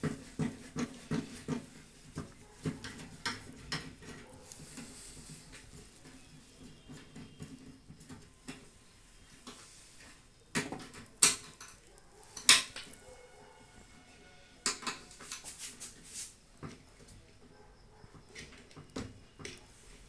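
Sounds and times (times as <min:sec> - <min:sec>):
handling noise: 0:00.0 - 0:14.0.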